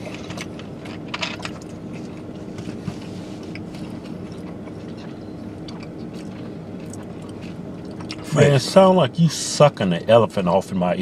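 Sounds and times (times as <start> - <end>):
chewing and mouth smacking: 0.0 - 8.3
low hum in car cabin: 0.0 - 11.0.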